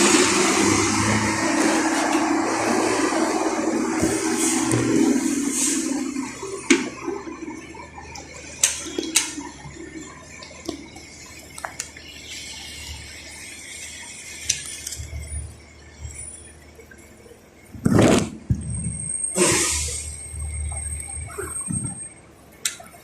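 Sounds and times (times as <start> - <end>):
fuel dispenser humming: 0.0 - 9.5.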